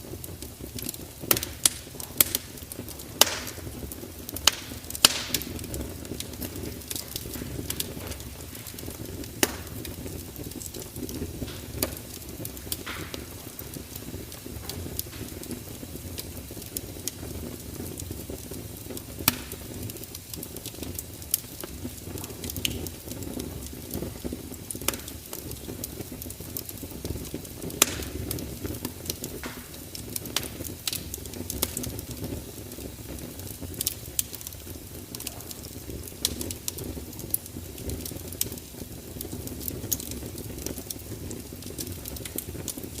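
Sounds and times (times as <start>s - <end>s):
fire crackling: 0.0s - 43.0s
fire popping and snapping: 0.0s - 43.0s.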